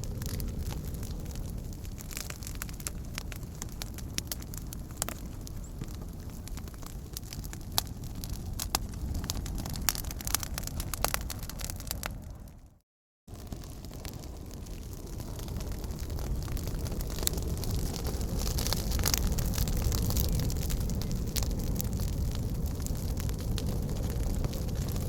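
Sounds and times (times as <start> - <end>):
wood fire crackling and popping: 0.0 - 12.7, 13.3 - 25.0.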